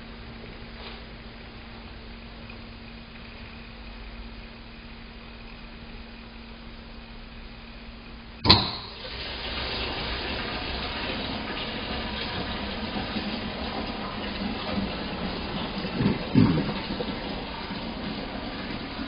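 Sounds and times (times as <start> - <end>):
water running from taps: 8.5 - 19.0.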